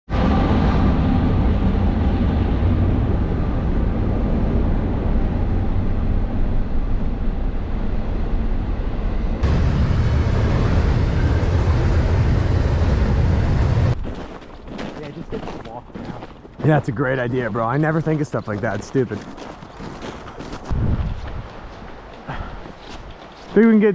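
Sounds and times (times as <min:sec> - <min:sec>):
loud low rumble: 0:00.1 - 0:14.1.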